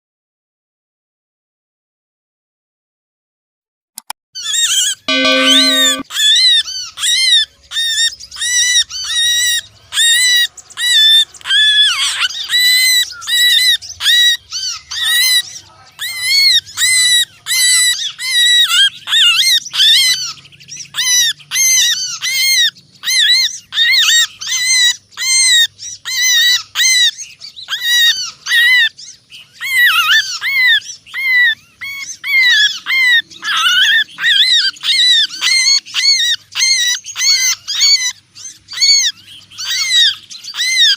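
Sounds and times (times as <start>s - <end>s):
small birds chattering harshly: 6.6s - 40.9s.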